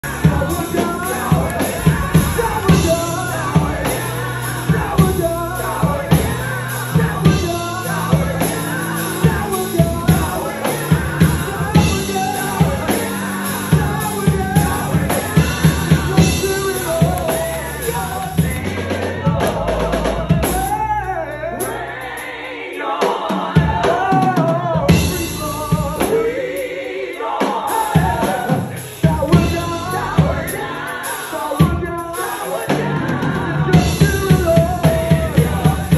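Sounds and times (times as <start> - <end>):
sustained low bass notes: 0.0 - 21.6
drum kit: 0.0 - 35.9
person singing gospel: 0.0 - 35.9.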